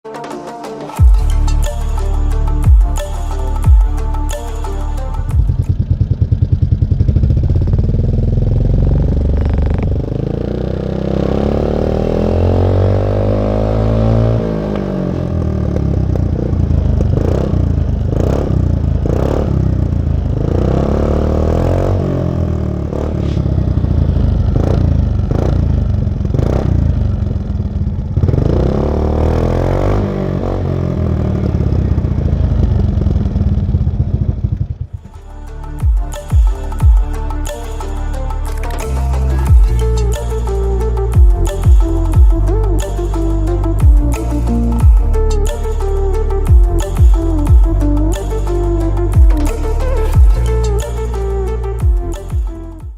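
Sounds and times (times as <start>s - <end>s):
scooter engine revving: 4.7s - 35.2s.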